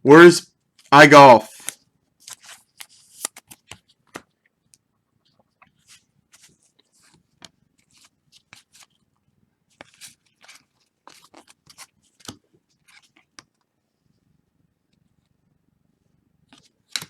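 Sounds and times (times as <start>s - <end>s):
rustling of cards and packs: 0.8s - 4.4s, 5.2s - 9.1s, 9.7s - 13.6s
cards clicking: 1.5s - 4.2s.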